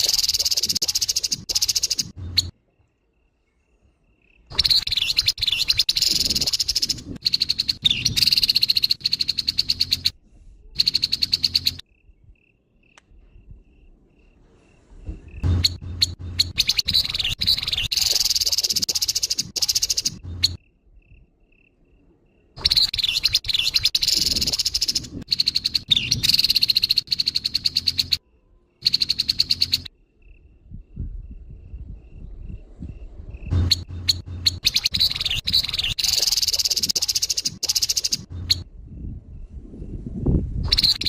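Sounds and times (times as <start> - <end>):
bird rattling calls: 0.0 - 2.5, 4.5 - 10.1, 10.8 - 11.8, 15.4 - 20.6, 22.6 - 28.2, 28.8 - 29.9, 33.5 - 38.6, 40.7 - 41.0.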